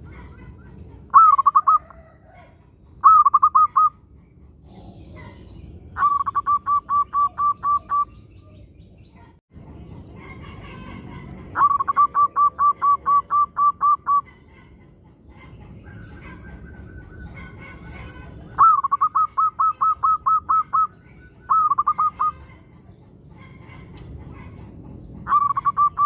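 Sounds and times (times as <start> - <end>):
dove cooing: 0.0 - 3.9, 6.0 - 8.6, 10.3 - 14.5, 15.8 - 22.5, 23.4 - 26.0.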